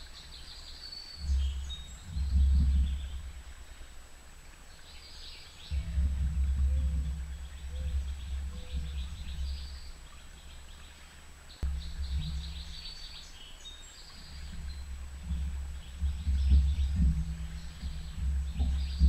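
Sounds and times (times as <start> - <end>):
songbirds chirping: 0.0 - 19.0
low rumble: 5.7 - 10.4, 11.6 - 13.4, 14.2 - 19.0.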